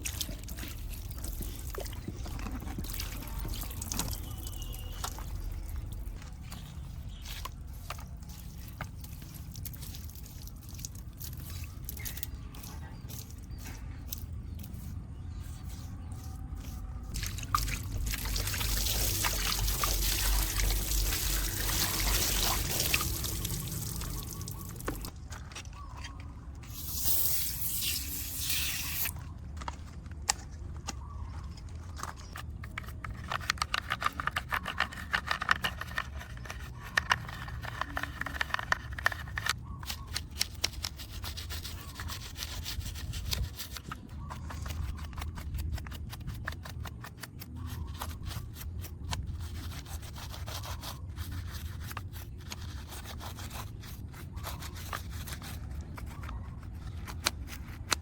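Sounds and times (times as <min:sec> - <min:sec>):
water running and spraying: 0:17.2 - 0:25.1, 0:26.7 - 0:29.1
clicks and scrapes of brushing: 0:19.0 - 0:58.0.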